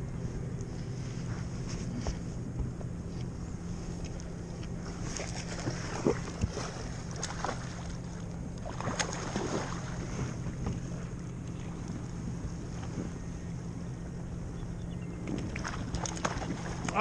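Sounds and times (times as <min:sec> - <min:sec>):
low hum: 0:00.0 - 0:17.0
water splashing: 0:05.0 - 0:10.2, 0:15.4 - 0:17.0.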